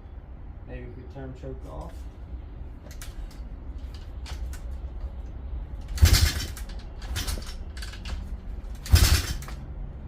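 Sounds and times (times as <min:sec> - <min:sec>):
steady low rumble: 0:00.0 - 0:10.0
engine kick-start whoosh: 0:05.9 - 0:07.5.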